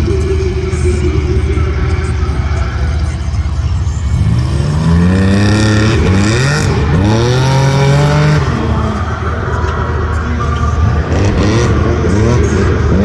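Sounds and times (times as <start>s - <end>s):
utility vehicle engine accelerating: 0.0s - 13.0s.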